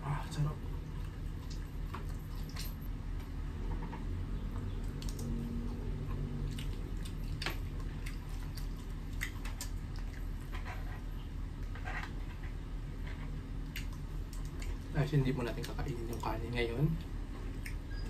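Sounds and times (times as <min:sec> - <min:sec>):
steady low hum: 0:00.0 - 0:18.0
person chewing: 0:00.8 - 0:03.3, 0:04.5 - 0:12.2, 0:13.0 - 0:15.0.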